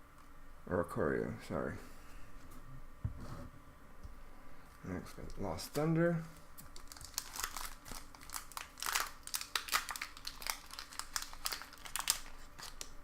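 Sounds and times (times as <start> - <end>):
foil wrapper crinkling: 6.6 - 13.0.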